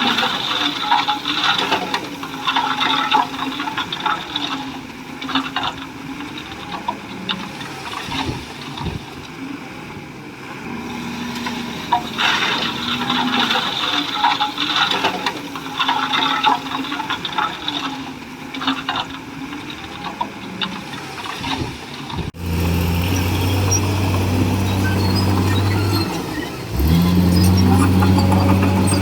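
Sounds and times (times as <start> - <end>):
tracks clattering: 0.0 - 22.4, 23.3 - 29.0
bulldozer diesel engine: 10.5 - 15.0, 22.3 - 29.0.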